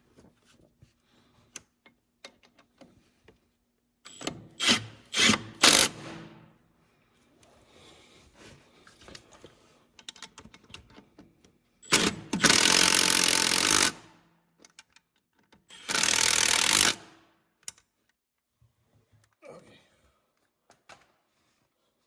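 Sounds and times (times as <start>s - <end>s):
impact wrench running: 4.1s - 6.4s, 11.8s - 14.1s, 15.7s - 17.2s.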